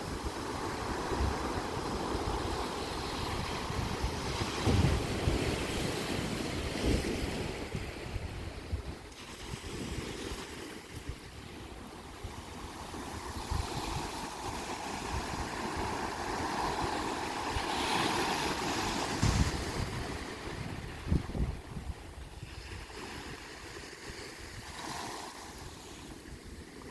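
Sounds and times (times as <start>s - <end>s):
wind buffeting microphone: 0.0s - 24.8s
waves washing against rocks: 13.1s - 26.2s.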